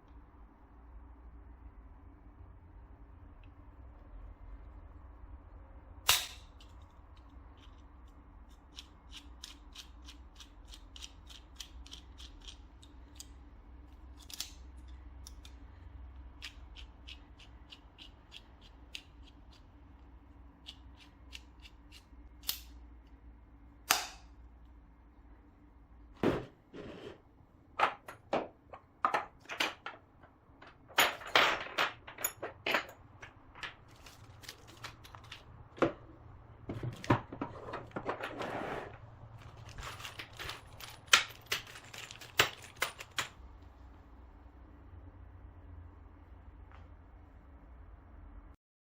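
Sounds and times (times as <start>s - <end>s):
plastic parts clicking and knocking: 27.8s - 36.0s, 39.4s - 43.4s.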